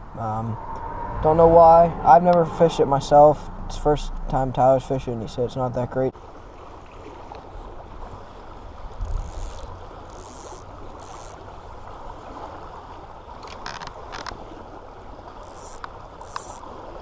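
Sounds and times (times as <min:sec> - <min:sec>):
river water running: 0:00.0 - 0:17.0
sharp clicks: 0:15.5 - 0:16.6.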